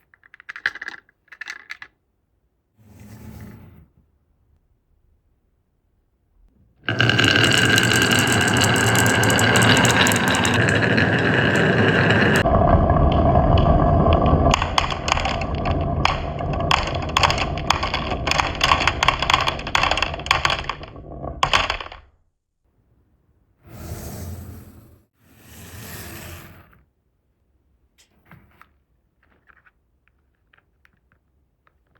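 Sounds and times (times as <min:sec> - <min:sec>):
marbles clacking on track pieces: 0:00.1 - 0:02.0, 0:06.9 - 0:22.0
marbles rolling on wooden track: 0:00.2 - 0:01.9, 0:06.9 - 0:22.1.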